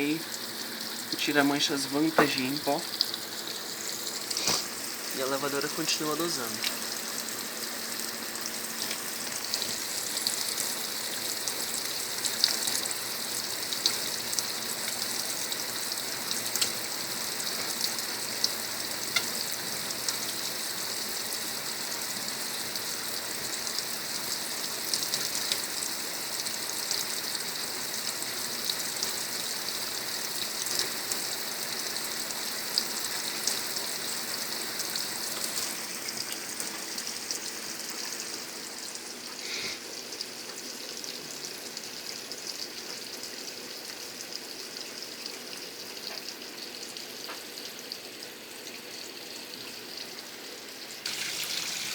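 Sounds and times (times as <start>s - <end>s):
water spraying into washing machine: 0.0s - 39.9s, 51.0s - 51.9s
water patters and splashes: 0.2s - 47.7s.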